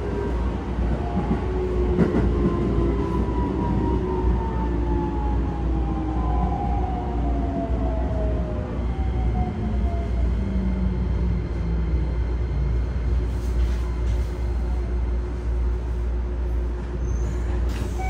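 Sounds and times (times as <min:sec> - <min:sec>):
rumble of wheels and track: 0:00.0 - 0:18.0.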